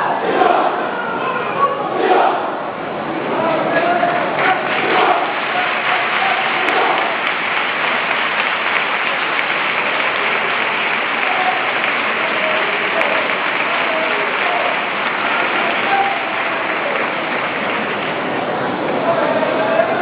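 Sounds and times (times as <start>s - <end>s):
voices: 0.0s - 20.0s
crowd applauding: 4.2s - 19.1s.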